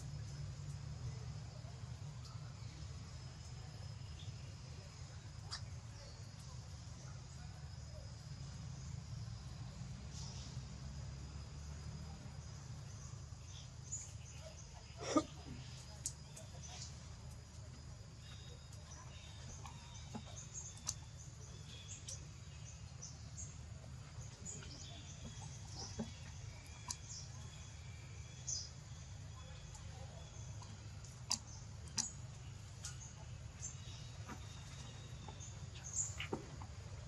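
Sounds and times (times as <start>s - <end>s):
birds chirping: 12.0s - 37.0s.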